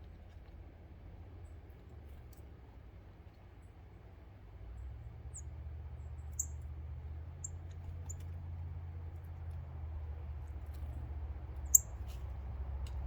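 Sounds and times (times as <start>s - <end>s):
bird chip calls: 11.6s - 12.0s.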